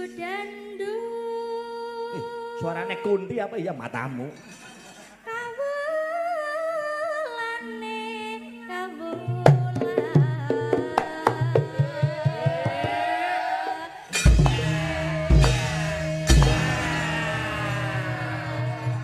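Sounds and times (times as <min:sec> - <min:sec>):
person singing with vibrato: 0:00.0 - 0:03.5, 0:05.1 - 0:19.0
drums and sharp knocks: 0:14.1 - 0:17.5
gamelan music: 0:14.1 - 0:19.0.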